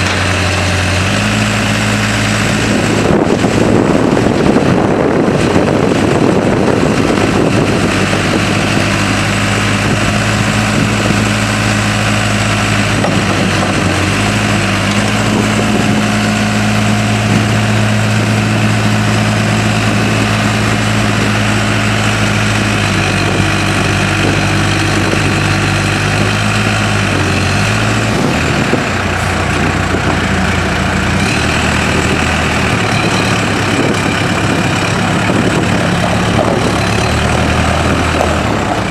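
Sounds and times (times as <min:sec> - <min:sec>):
diesel engine running at low revs: 0:00.0 - 0:38.9.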